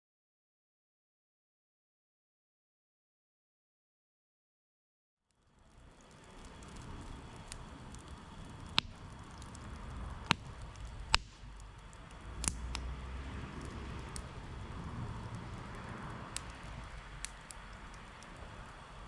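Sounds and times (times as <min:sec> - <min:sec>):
campfire crackling and popping: 0:05.3 - 0:19.0.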